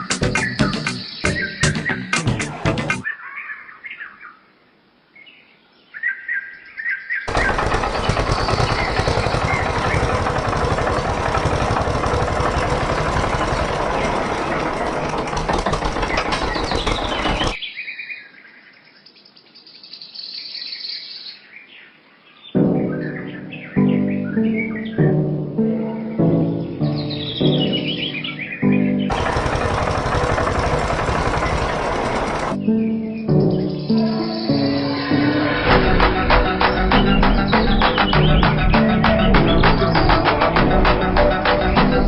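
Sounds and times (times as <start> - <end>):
birds chirping: 0.0 - 42.0
small motor running: 7.3 - 17.6, 29.1 - 32.6.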